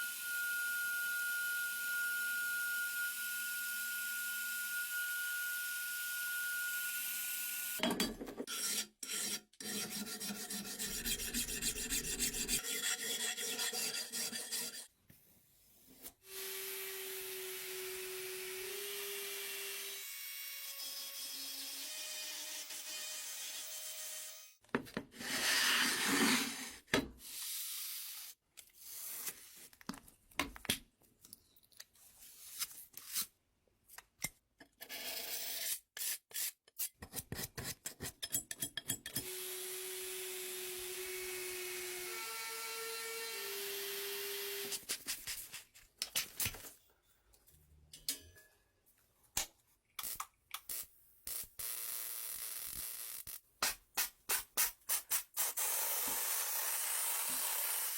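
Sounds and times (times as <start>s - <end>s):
rough scraping: 25.2s - 26.8s.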